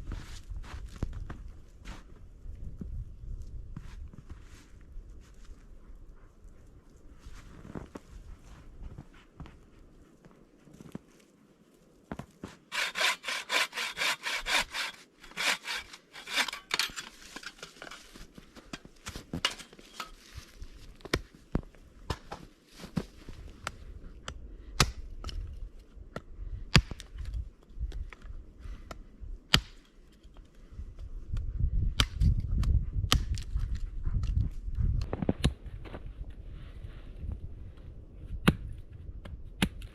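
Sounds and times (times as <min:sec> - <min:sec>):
hand saw cutting wood: 0:12.7 - 0:18.0.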